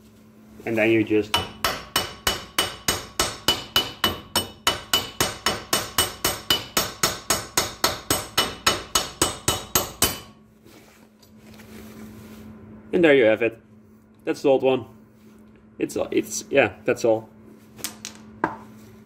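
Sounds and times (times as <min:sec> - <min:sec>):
hammer striking metal stud: 0:01.3 - 0:10.4.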